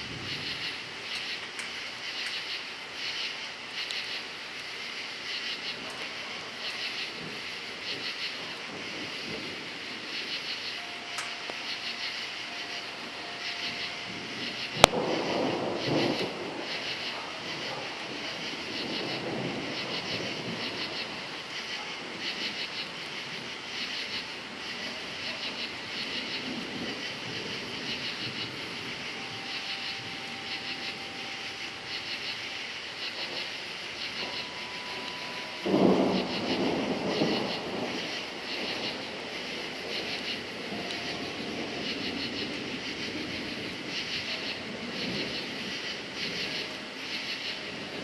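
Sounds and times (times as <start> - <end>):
crickets chirping: 0.0 - 48.0
thunder rumbling: 0.0 - 48.0
sharp thunder crack: 8.6 - 23.5, 25.5 - 46.5.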